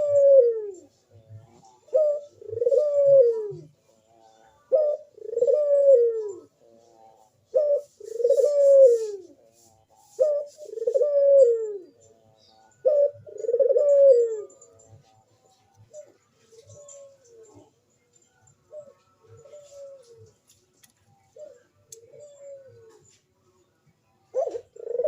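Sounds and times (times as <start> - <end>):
dove cooing: 0.0 - 20.6, 21.2 - 25.0.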